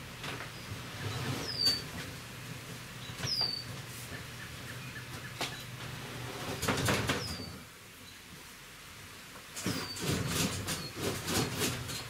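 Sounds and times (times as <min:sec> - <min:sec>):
furniture squeaking: 0:01.0 - 0:02.1.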